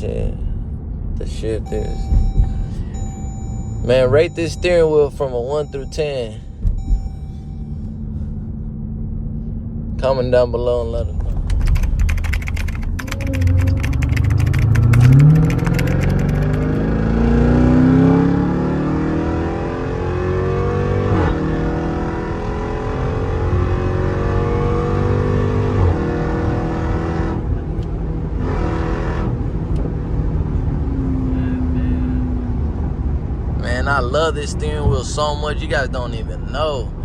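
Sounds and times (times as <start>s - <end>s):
car engine accelerating hard: 11.4s - 36.9s.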